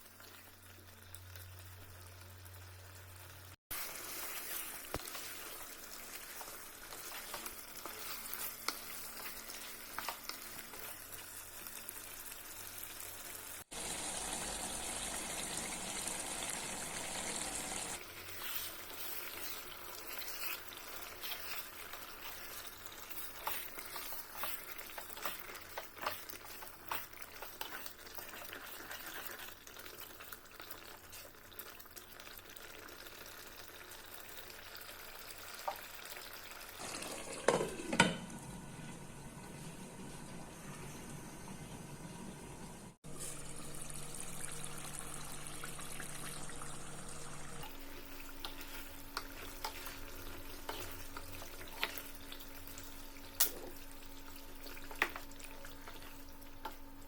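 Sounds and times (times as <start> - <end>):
food sizzling in a pan: 0.0 - 57.0
stirring in a pan: 3.7 - 13.8, 17.7 - 38.1, 43.0 - 57.0.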